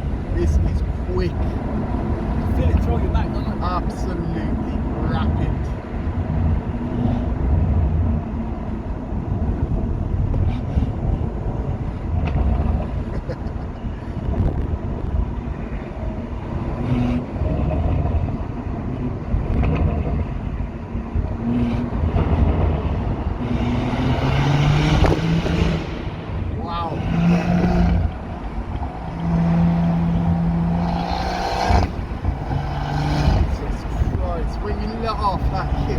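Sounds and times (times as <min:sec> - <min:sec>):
car engine running hard: 0:00.0 - 0:35.9
road noise: 0:00.0 - 0:35.9
exhaust cracks: 0:14.2 - 0:35.9.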